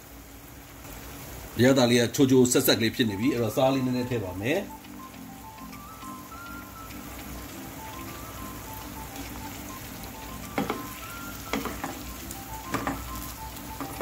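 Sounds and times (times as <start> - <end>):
food simmering and sizzling in pan: 0.0 - 14.0
spatula knocking against pan: 10.4 - 13.1.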